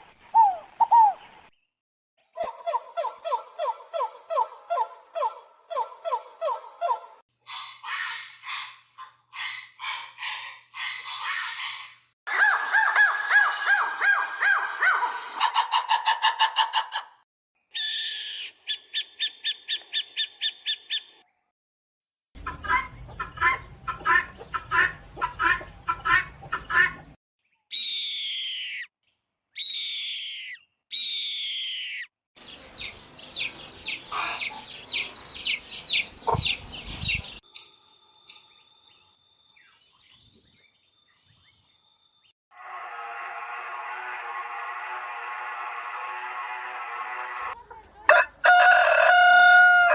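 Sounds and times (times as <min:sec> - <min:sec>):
bird calls: 0:00.3 - 0:01.5, 0:29.6 - 0:42.3
falling whistled calls: 0:27.6 - 0:28.9, 0:29.6 - 0:32.1, 0:38.3 - 0:42.3.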